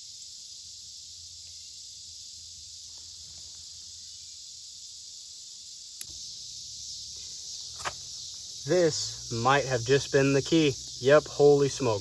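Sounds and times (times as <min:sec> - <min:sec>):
high-pitched insect chorus: 0:00.0 - 0:12.0
sharp click: 0:07.8 - 0:08.0.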